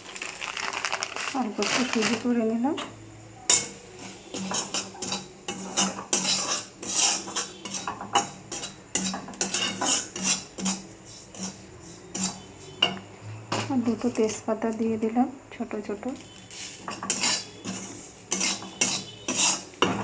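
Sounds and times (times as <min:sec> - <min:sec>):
metal spatula scraping pan: 0:03.5 - 0:14.4, 0:16.2 - 0:20.0.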